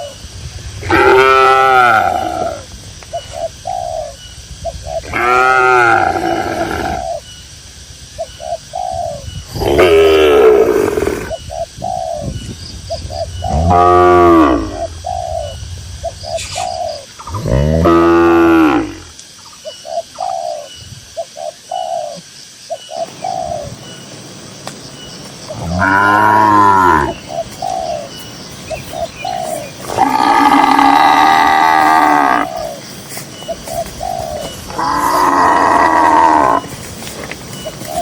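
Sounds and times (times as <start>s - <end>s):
doves cooing: 0.8s - 7.3s, 8.2s - 22.3s, 22.9s - 38.0s
cattle mooing: 25.5s - 27.2s, 29.9s - 32.6s, 34.7s - 36.8s.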